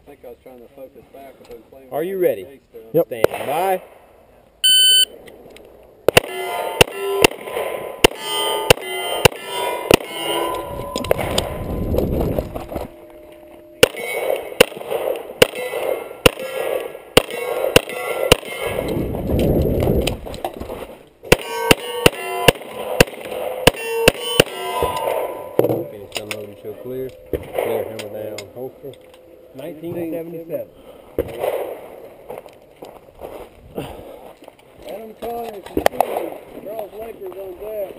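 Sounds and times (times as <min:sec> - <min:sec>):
metallic ring of steel targets: 0:06.2 - 0:19.0, 0:21.3 - 0:29.8.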